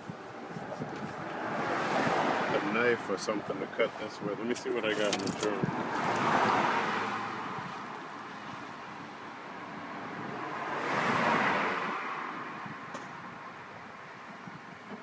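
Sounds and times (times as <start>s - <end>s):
car passing by: 1.2s - 3.0s, 5.3s - 8.6s, 9.6s - 12.7s.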